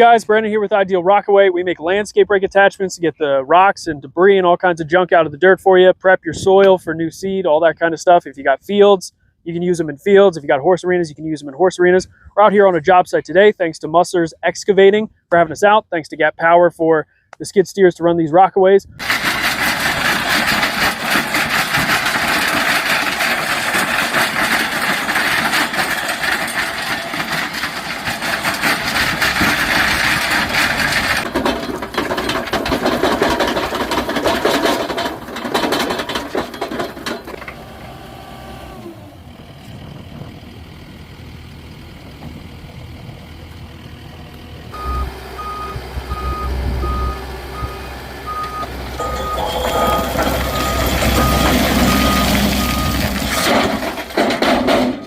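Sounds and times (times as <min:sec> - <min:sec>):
skid steer engine running: 0:19.0 - 0:55.0
reversing alarm beeping: 0:44.7 - 0:53.7.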